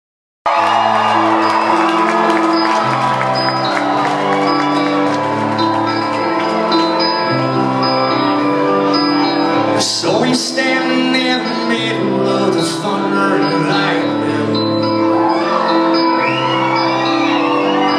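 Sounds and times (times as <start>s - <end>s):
country band playing: 1.0s - 17.9s.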